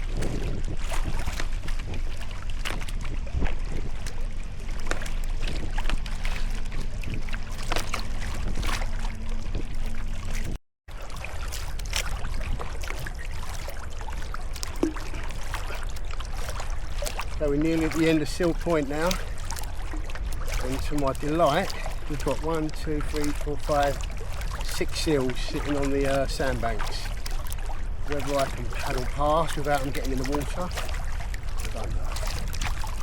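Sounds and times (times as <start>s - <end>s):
steady low rumble: 0.0s - 22.2s
paddle splashing in water: 0.0s - 33.0s
water dripping off paddle: 0.0s - 33.0s.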